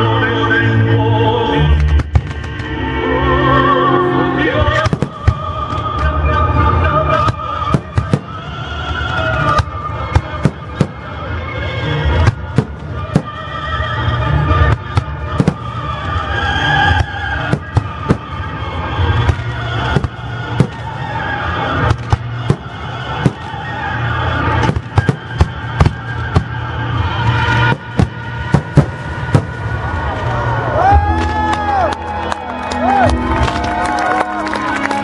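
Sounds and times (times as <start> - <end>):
music playing: 0.0 - 35.0
fireworks bangs: 1.8 - 2.7, 4.7 - 6.1, 7.1 - 31.5.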